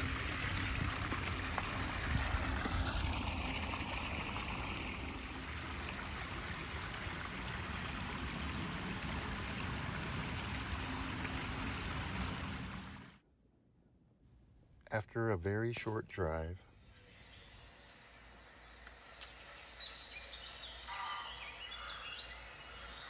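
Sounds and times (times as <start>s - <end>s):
stream water rushing: 0.0s - 13.2s.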